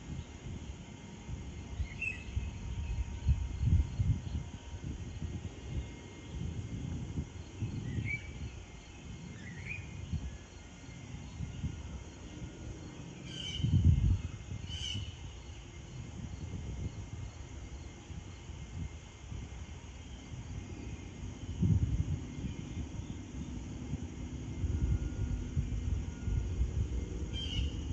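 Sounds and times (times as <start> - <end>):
insects chirping: 0.0 - 27.9
rising bird chirps: 27.3 - 27.9.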